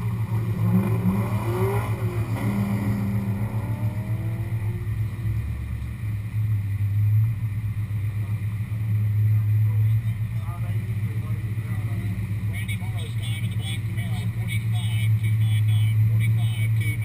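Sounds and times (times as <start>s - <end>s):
car engine revving through gears: 0.0s - 5.1s
low engine rumble: 0.0s - 17.0s.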